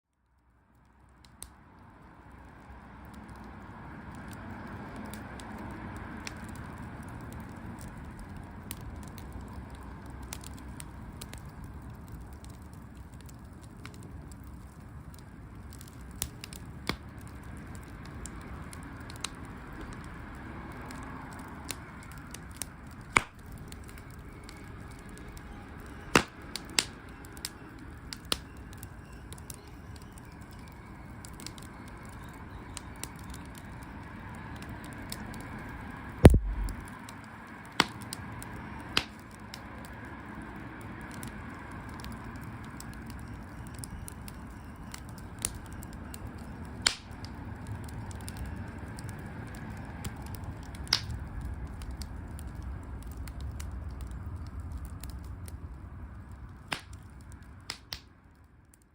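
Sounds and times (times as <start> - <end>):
wood fire crackling: 0.1 - 58.9
sharp pops: 23.2 - 23.4, 36.2 - 36.8.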